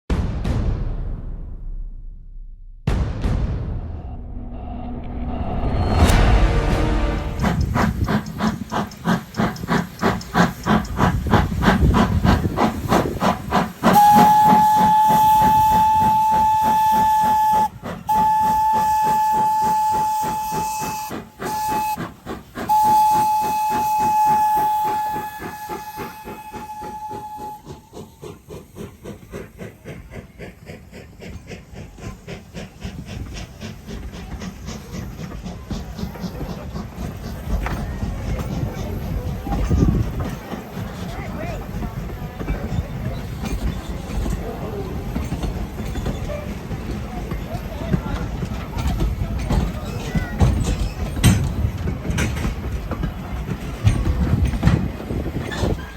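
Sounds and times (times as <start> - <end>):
steam locomotive chuffing: 2.8 - 55.9
steam whistle blast: 4.4 - 8.0, 13.9 - 28.2.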